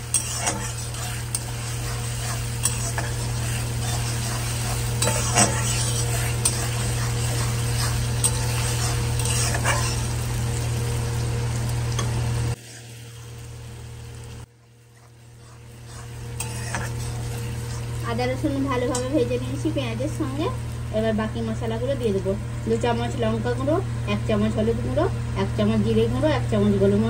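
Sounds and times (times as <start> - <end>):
metal spatula scraping pan: 0.0 - 10.3, 15.0 - 18.0
onions sizzling in oil: 0.0 - 25.0.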